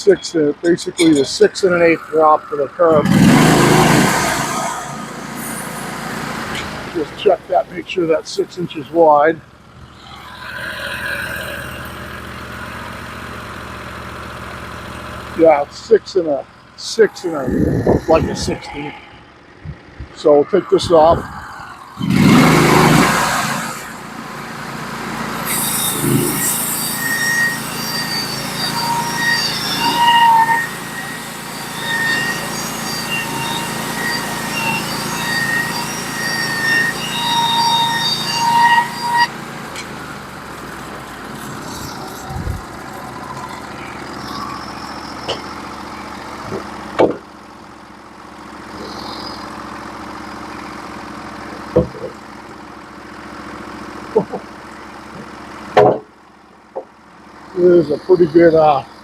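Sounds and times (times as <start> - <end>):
sawmill engine running: 0.0 - 59.0
band saw blade cutting wood: 0.6 - 9.2, 16.1 - 19.0, 25.2 - 40.0.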